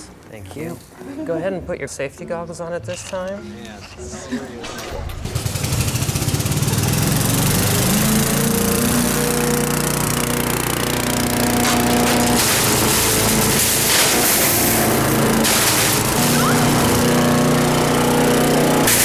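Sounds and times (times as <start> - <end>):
wood chipper engine running: 5.1 - 19.0.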